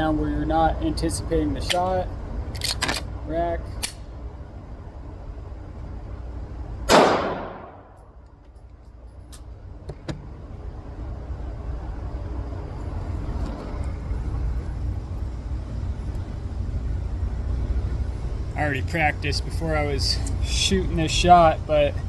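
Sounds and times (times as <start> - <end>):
pistol shot ringing: 6.9 - 8.0.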